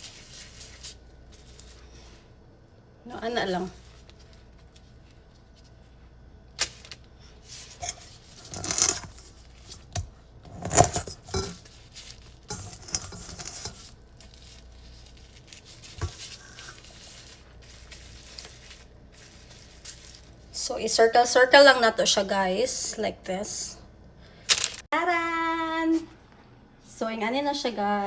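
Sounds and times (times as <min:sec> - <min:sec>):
gloved hands rustling and crackling: 0:00.0 - 0:02.2, 0:10.7 - 0:20.5.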